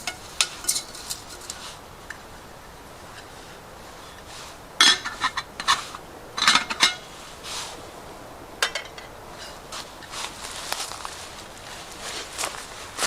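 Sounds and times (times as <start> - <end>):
cookware clinking and clattering: 0.0 - 1.6, 4.8 - 5.8, 6.4 - 7.0.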